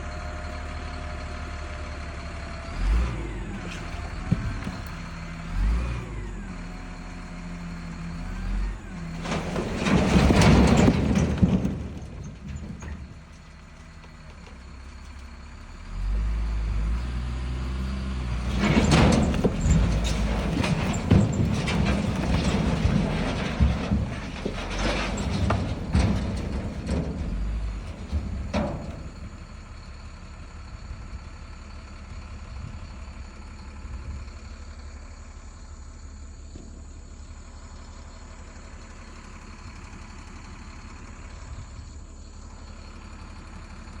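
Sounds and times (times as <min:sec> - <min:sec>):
dump truck engine rumbling: 0:00.0 - 0:44.0
knocks and rattles: 0:03.6 - 0:05.3, 0:08.4 - 0:15.4, 0:18.2 - 0:29.5.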